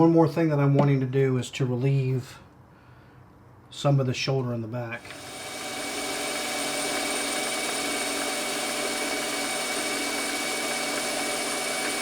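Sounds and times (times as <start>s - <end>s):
metal lathe humming: 5.0s - 12.0s.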